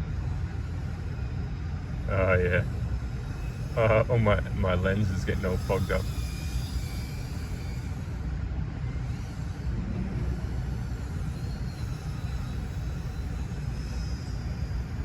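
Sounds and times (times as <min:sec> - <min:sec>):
steady low rumble: 0:00.0 - 0:08.8, 0:09.4 - 0:11.7
drone motors whining: 0:02.2 - 0:13.4.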